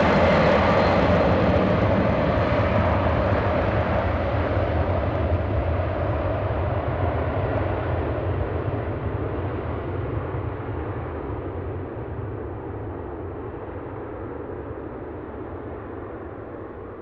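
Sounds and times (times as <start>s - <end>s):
jet engines roaring: 0.0s - 6.1s.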